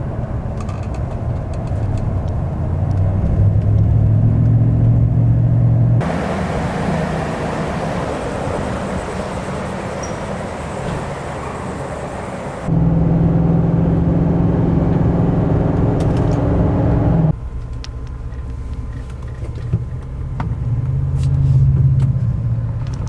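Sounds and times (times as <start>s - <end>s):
vehicle engine running: 2.2s - 17.4s
steady rushing noise: 6.0s - 17.3s.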